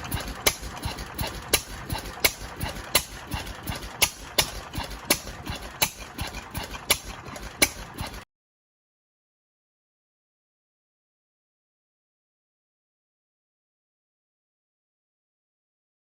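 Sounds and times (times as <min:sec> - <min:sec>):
old engine firing knocks: 0:00.0 - 0:08.2
engine clatter and rumble: 0:00.0 - 0:08.3.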